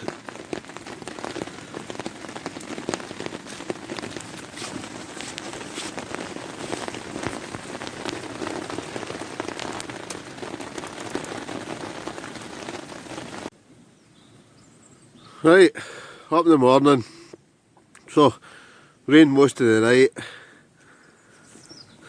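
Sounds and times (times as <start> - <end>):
heavy rain on a tarp: 0.0 - 13.5.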